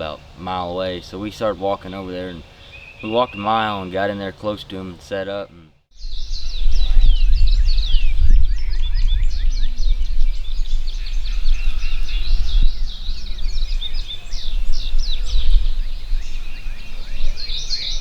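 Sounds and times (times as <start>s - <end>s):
songbirds singing: 0.0s - 18.0s
low rumble: 6.0s - 18.0s.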